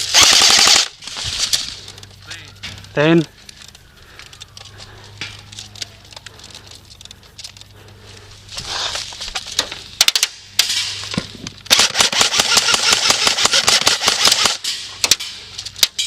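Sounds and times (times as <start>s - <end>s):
airsoft gun firing: 0.0s - 1.0s, 11.7s - 15.3s.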